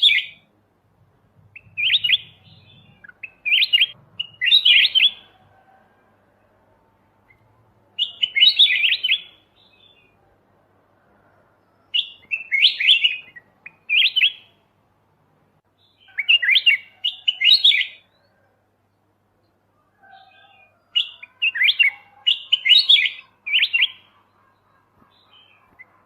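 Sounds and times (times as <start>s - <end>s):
bird singing warbled phrases: 0.0s - 0.5s, 1.4s - 5.4s, 7.2s - 10.2s, 11.7s - 14.7s, 15.6s - 26.0s.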